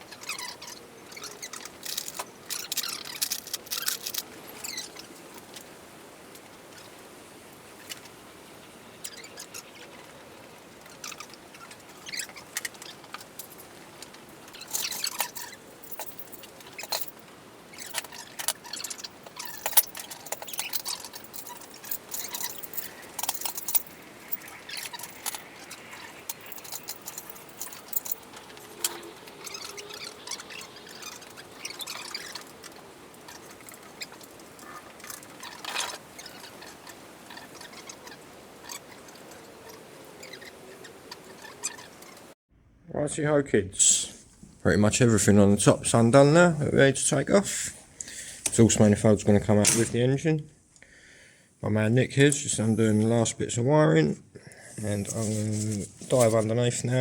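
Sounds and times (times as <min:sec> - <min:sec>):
metal tools clinking and rattling: 0:14.5 - 0:34.2.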